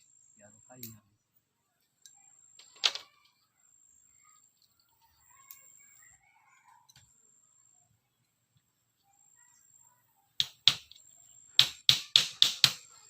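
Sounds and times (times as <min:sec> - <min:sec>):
faint bird calls: 0:00.0 - 0:08.3.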